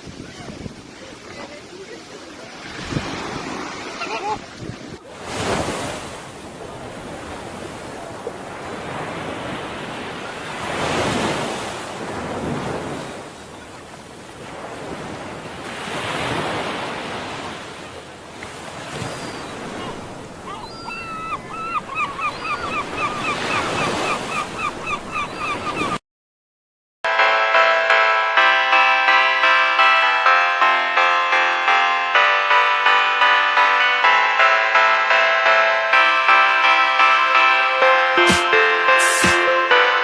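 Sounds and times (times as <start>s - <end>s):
ocean waves breaking: 0.0s - 26.0s, 27.2s - 40.0s
rapid high chirps: 38.2s - 39.5s.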